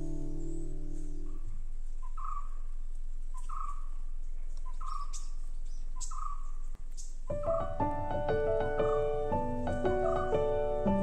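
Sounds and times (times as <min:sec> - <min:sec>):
piano music: 0:00.0 - 0:01.4, 0:07.3 - 0:11.0
bird calling: 0:00.0 - 0:11.0.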